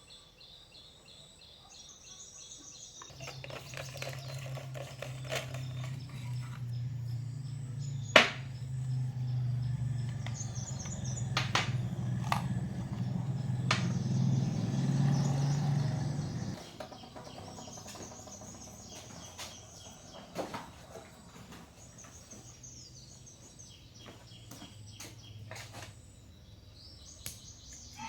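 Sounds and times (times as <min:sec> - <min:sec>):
faint birds chirping: 0:00.0 - 0:28.0
low hum: 0:03.1 - 0:16.6.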